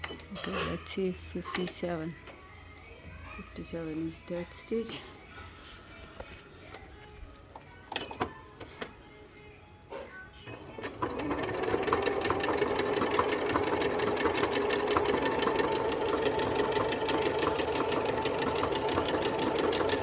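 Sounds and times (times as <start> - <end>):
sewing machine stitching: 10.5 - 20.0.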